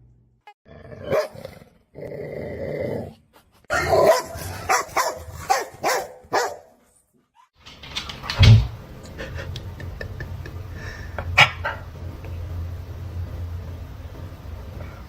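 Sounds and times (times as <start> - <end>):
dog barking: 1.0 - 1.4, 3.7 - 6.8.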